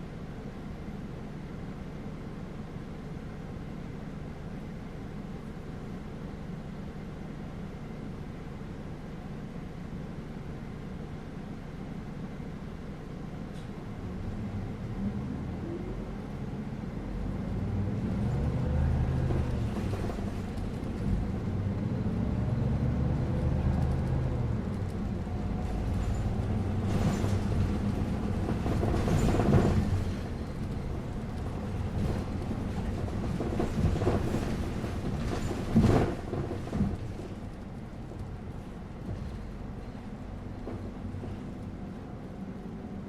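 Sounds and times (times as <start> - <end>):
bus engine drone: 0.0 - 43.0
road rumble: 0.0 - 43.0.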